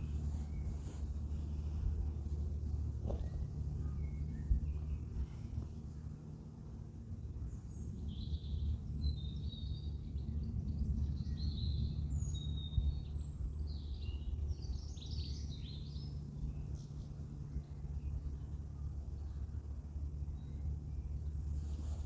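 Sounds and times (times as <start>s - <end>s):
small birds chirping: 0.0s - 6.6s
low outdoor rumble: 0.0s - 22.0s.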